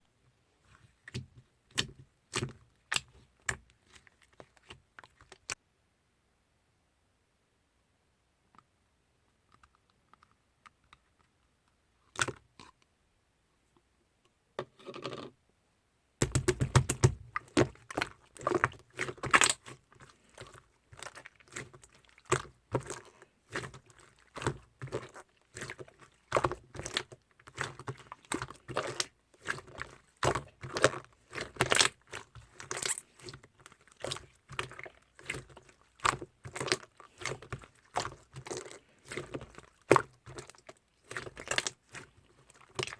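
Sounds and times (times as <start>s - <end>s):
sticky slime clicks: 16.2s - 17.5s.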